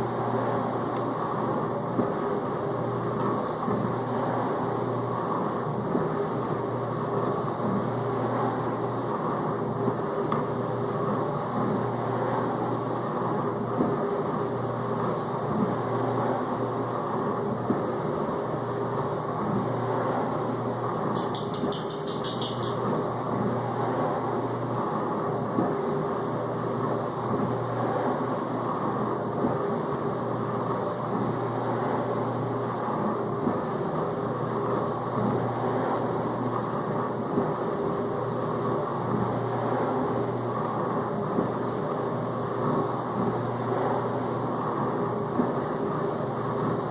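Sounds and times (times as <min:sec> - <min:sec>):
dishwasher pump hum: 0:20.9 - 0:23.4.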